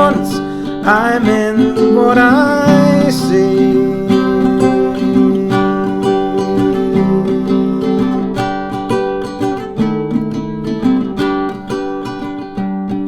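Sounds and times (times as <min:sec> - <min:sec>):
person singing: 0:00.0 - 0:09.6
acoustic guitar strumming chords: 0:00.0 - 0:13.0.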